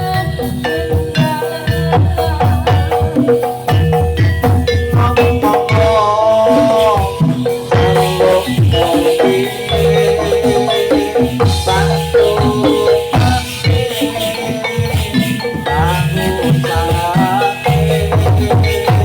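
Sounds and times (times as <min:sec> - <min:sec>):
drum strokes: 0:00.0 - 0:19.0
metallophones ringing: 0:00.0 - 0:19.0.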